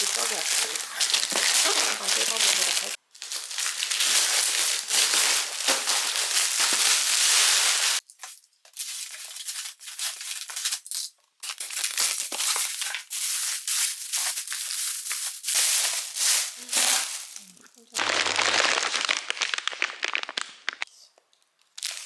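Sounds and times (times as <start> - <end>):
plastic packaging crinkling: 0.0 - 20.8, 21.6 - 22.0.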